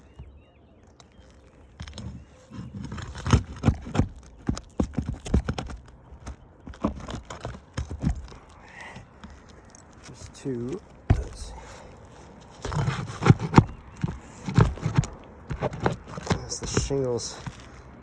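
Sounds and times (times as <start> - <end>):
tool knocking and scraping a nail: 1.9 - 8.4, 12.5 - 17.7.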